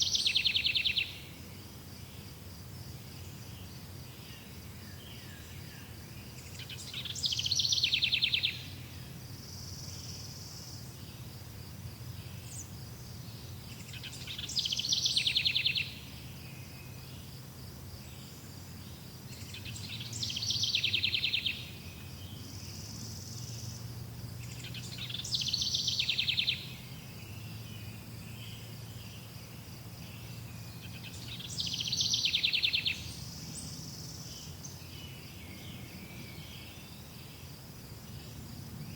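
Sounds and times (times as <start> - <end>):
songbird trilling: 0.0 - 1.3, 6.3 - 8.8, 13.5 - 16.8, 19.3 - 23.8, 24.4 - 27.6, 30.1 - 34.9
crickets droning: 0.0 - 38.9.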